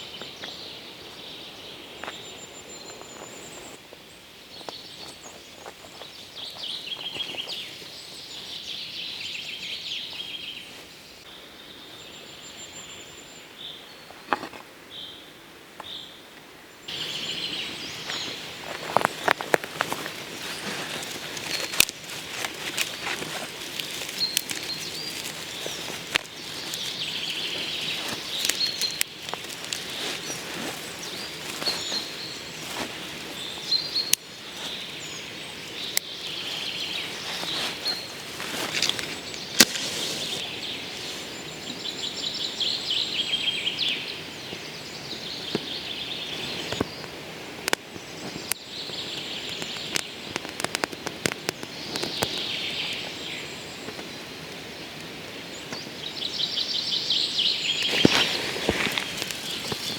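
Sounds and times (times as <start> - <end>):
small birds chirping: 0.0 - 14.3, 16.8 - 59.9
sharp clicks and crackles: 18.9 - 32.0, 32.6 - 34.8.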